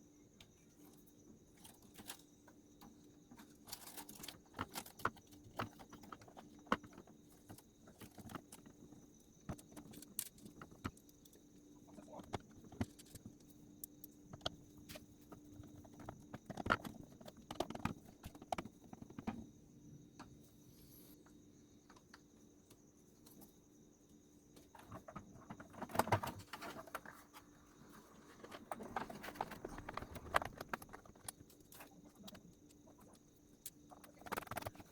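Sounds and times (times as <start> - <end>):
faint steady hum: 0.0 - 34.9.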